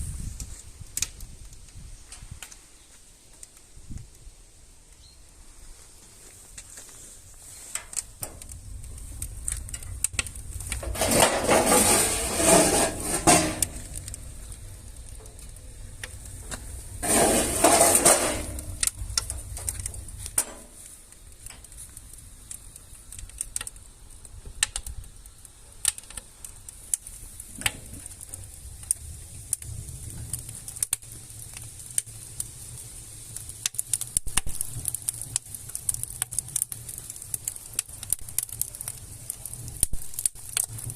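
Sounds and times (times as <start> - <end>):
wood fire crackling and popping: 0.0 - 40.9
metal stove clattering and rattling: 7.8 - 8.6, 9.7 - 14.5, 16.4 - 20.8.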